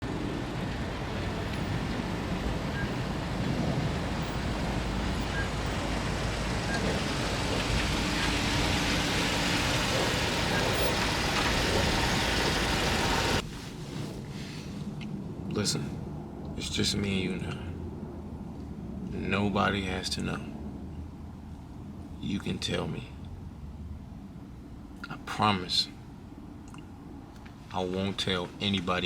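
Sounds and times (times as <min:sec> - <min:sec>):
road traffic rushing: 0:00.0 - 0:14.9.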